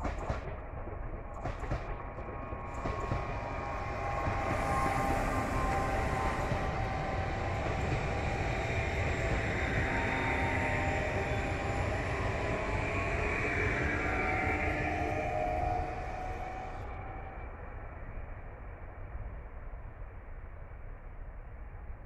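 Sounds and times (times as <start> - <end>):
faint train whine: 0.0 - 22.0
wheels rushing on rail: 2.6 - 17.2.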